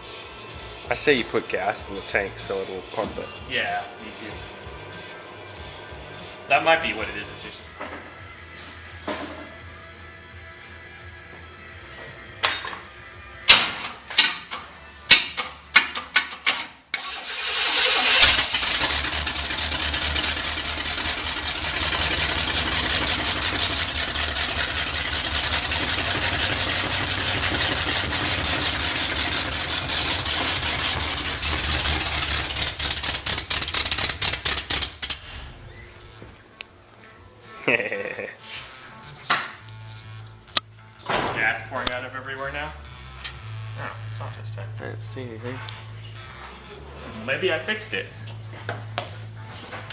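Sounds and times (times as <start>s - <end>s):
engine running: 17.0s - 35.6s
engine popping: 17.6s - 35.2s.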